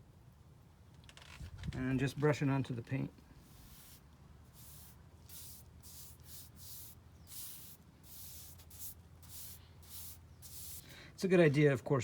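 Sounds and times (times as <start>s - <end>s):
paintbrush bristles swishing: 3.4s - 10.8s.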